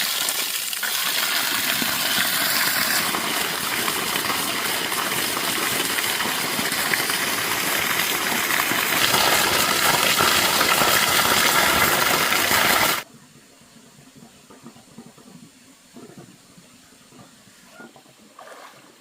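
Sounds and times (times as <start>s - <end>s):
water gushing: 0.0s - 13.1s.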